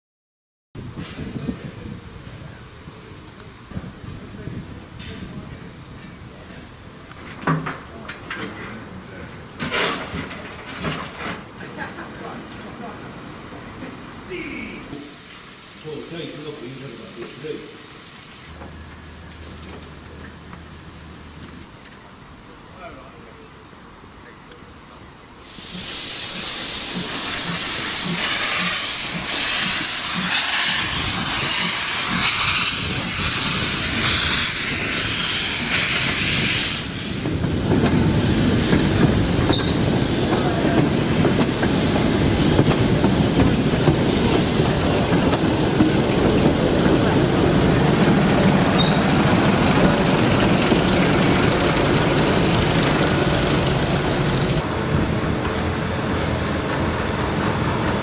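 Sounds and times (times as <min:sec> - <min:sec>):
steam locomotive working: 0:00.8 - 0:58.0
hissing steam: 0:09.8 - 0:19.4, 0:25.3 - 0:58.0.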